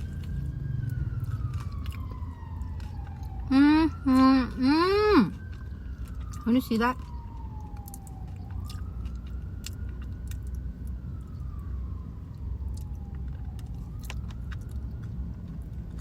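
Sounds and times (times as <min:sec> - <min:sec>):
emergency siren wailing: 0:00.0 - 0:16.0
low traffic rumble: 0:00.0 - 0:16.0.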